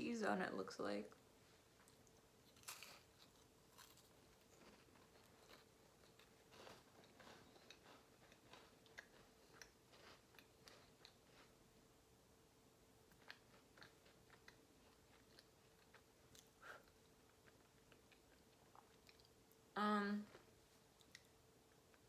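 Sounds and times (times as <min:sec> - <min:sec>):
chewing cracker crunches: 0:01.8 - 0:11.6, 0:13.1 - 0:19.3.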